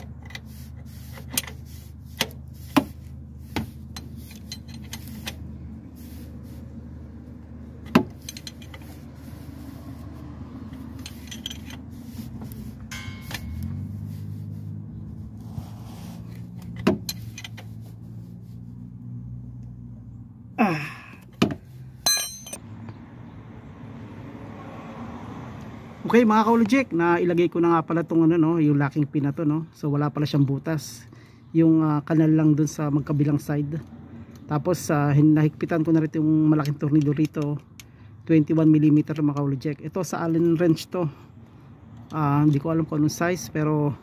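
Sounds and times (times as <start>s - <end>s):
metal tools clinking: 3.8s - 5.5s, 7.8s - 9.1s, 10.6s - 14.0s, 16.6s - 17.7s, 22.0s - 22.6s.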